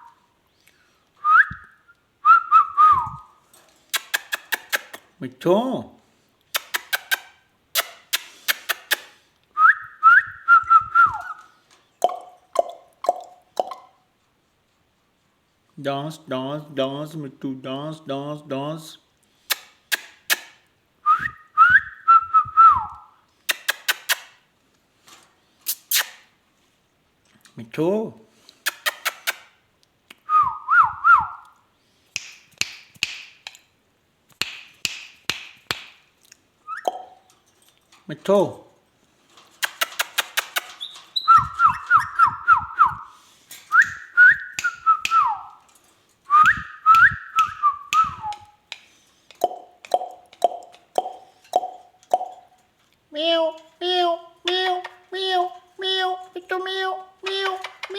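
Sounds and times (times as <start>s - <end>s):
parrot clicking: 3.9s - 5.1s, 6.5s - 9.1s, 39.6s - 40.9s, 46.4s - 52.5s, 57.2s - 57.9s
sharp taps: 34.3s - 36.0s
parrot warbling whistle: 36.6s - 37.2s
parrot whistling with chirps: 36.6s - 37.3s, 40.8s - 43.1s.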